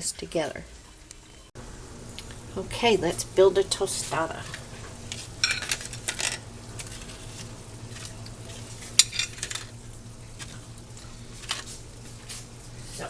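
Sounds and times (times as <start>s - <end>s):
steady low hum: 0.0s - 13.0s
dishes and utensils clattering: 4.1s - 11.8s.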